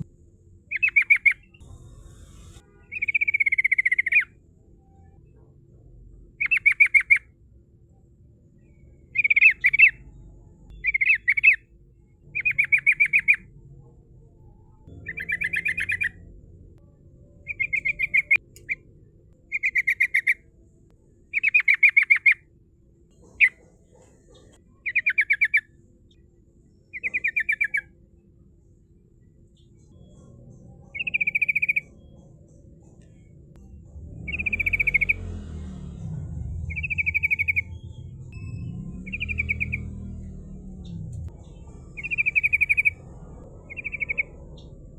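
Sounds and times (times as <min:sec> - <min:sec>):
bird singing trilled phrases: 0:00.7 - 0:01.6, 0:02.4 - 0:04.3, 0:06.4 - 0:07.3, 0:08.6 - 0:10.1, 0:10.7 - 0:11.7, 0:12.3 - 0:13.4, 0:14.9 - 0:16.3, 0:17.4 - 0:18.8, 0:19.5 - 0:20.4, 0:21.3 - 0:22.4, 0:24.8 - 0:25.7, 0:26.9 - 0:27.9, 0:30.9 - 0:32.2, 0:34.3 - 0:35.3, 0:36.6 - 0:43.0, 0:43.6 - 0:44.8.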